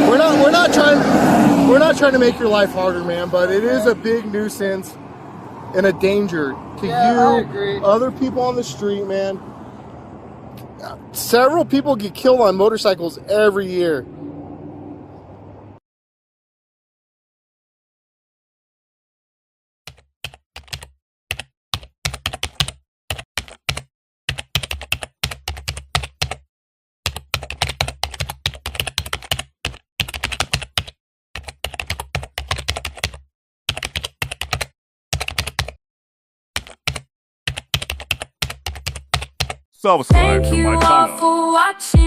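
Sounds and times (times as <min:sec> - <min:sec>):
computer keyboard typing: 0:19.9 - 0:35.8, 0:36.6 - 0:39.6.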